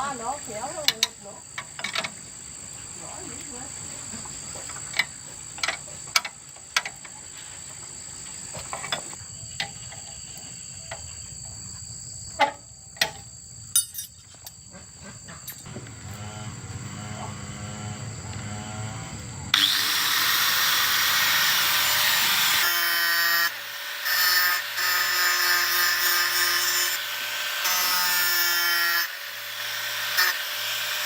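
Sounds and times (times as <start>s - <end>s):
insects droning: 0.0s - 31.0s
small motor humming: 15.6s - 31.0s.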